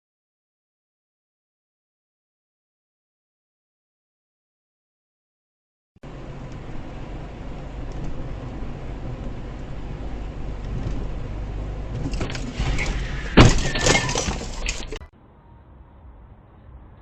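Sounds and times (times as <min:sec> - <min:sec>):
car road and engine noise: 0:06.0 - 0:17.0
vehicle collision crash: 0:11.9 - 0:15.1.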